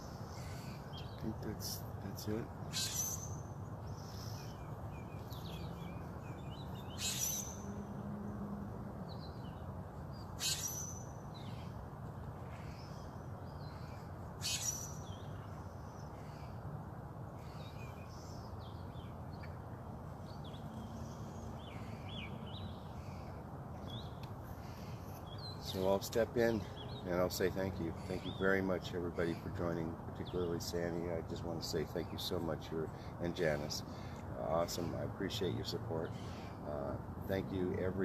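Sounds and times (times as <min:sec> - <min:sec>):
harsh high bird call: 0:02.2 - 0:04.8, 0:06.7 - 0:07.8, 0:10.4 - 0:11.7, 0:13.8 - 0:15.3.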